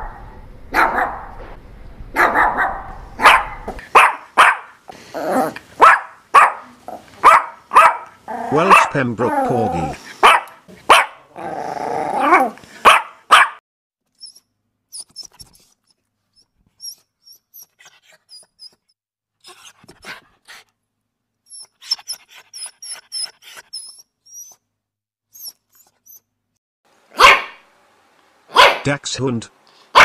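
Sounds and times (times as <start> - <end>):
dog barking and growling: 0.0 - 1.4, 2.1 - 13.6, 27.1 - 27.6, 28.5 - 28.9
puppies squeaking: 14.2 - 19.7, 21.5 - 24.6, 25.3 - 26.3.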